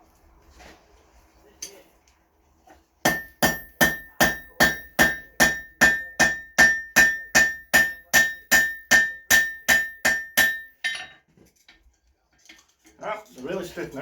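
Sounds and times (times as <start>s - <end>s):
hammer striking rivet on anvil: 3.1s - 11.2s.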